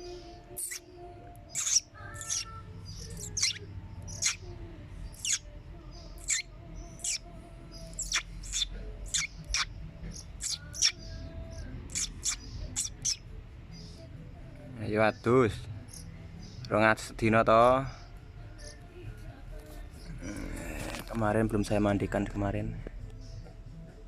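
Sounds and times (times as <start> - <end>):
bird giving sharp chirps: 0.6 - 0.8, 1.5 - 5.5, 6.1 - 13.2, 15.8 - 16.6.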